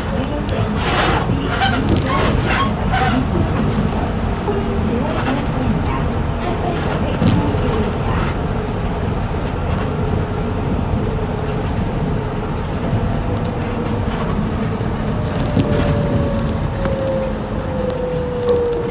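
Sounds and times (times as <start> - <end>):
bus engine rumbling: 0.0 - 18.9
rattles and clicks: 0.0 - 18.9.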